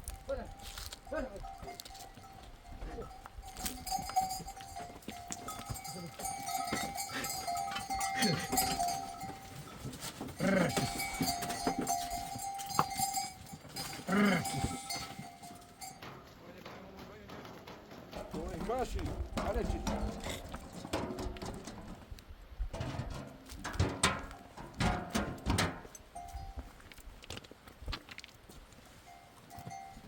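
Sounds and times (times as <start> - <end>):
livestock bell ringing: 0.0 - 16.4, 25.2 - 26.8, 29.0 - 30.0
sheep and goats bleating: 1.0 - 16.0.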